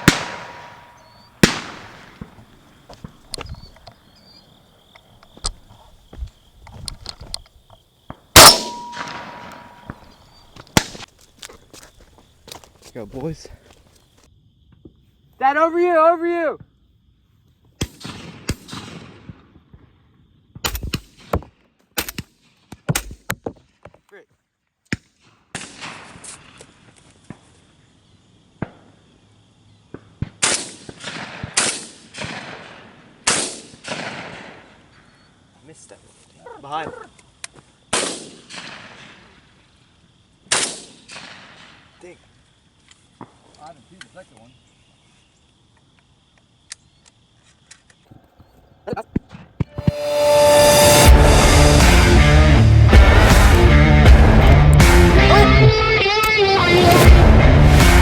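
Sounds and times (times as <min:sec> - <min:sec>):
shotgun shot: 0:00.0 - 0:02.3, 0:08.4 - 0:10.2.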